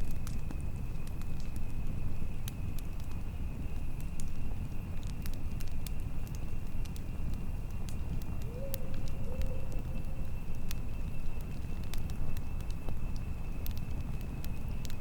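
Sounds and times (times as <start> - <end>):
campfire crackling and popping: 0.0 - 15.0
wind rumble: 0.0 - 15.0
faint steady high tone: 8.4 - 11.2.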